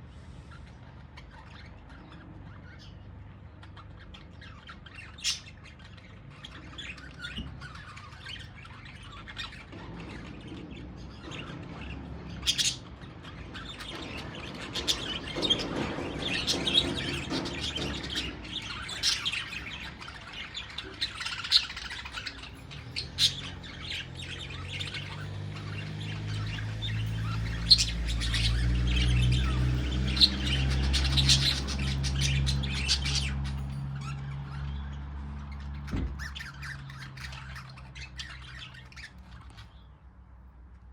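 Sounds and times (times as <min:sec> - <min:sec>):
budgerigars chattering: 0:00.5 - 0:40.0.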